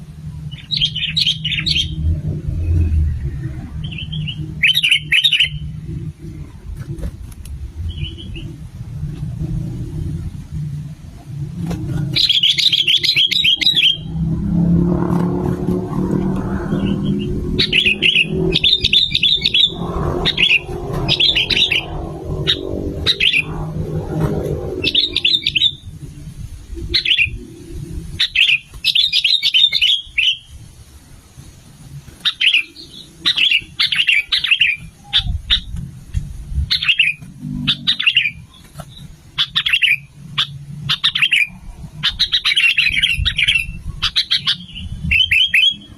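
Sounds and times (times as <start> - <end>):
low rumble: 0.0 - 28.5
bird singing chattering phrases: 0.5 - 2.0, 3.8 - 5.8, 7.9 - 8.6, 12.0 - 14.2, 16.7 - 23.6, 24.8 - 26.0, 26.8 - 27.6, 28.2 - 30.5, 32.2 - 35.8, 36.7 - 45.9.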